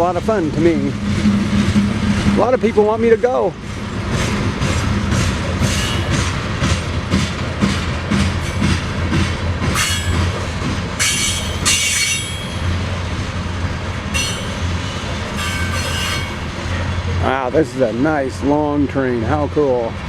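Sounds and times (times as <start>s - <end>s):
wheels humming on rail: 0.0s - 20.0s
high-pitched wheel squeals: 5.6s - 6.4s, 8.4s - 9.0s, 9.8s - 12.8s, 14.1s - 16.7s.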